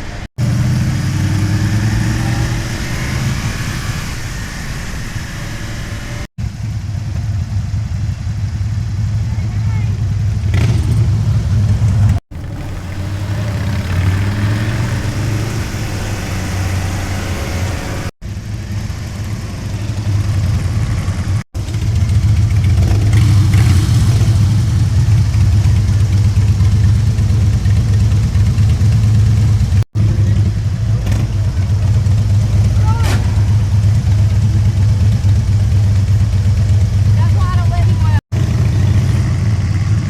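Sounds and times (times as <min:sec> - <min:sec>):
wind noise: 0:00.0 - 0:08.6
motorcycle engine running: 0:00.0 - 0:40.0.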